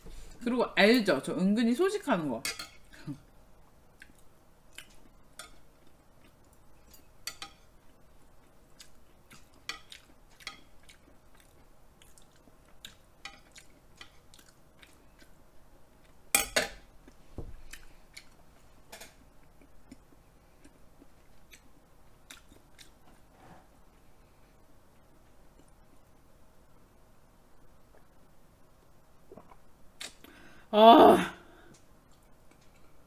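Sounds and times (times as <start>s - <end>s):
person chewing: 4.0s - 5.2s, 5.8s - 15.4s, 17.0s - 18.4s, 19.4s - 23.0s.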